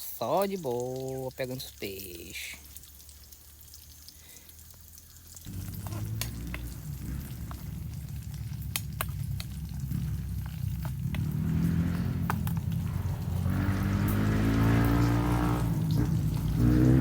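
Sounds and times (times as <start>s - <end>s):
sausage sizzling in a pan: 0.0s - 17.0s
low hum: 5.5s - 17.0s.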